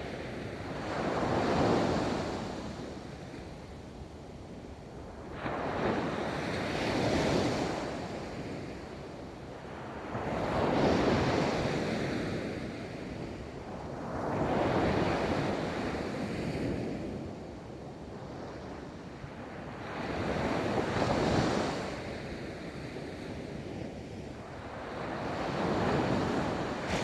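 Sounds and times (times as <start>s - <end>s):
ocean waves breaking on beach: 24.7s - 27.0s.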